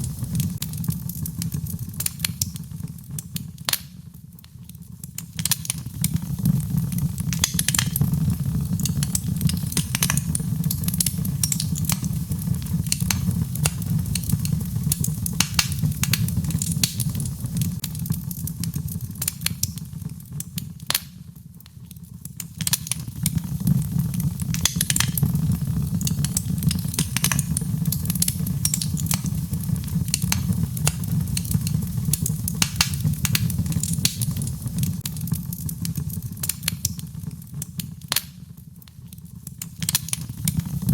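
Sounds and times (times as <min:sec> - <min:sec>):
logs crackling and popping: 0:00.0 - 0:40.9.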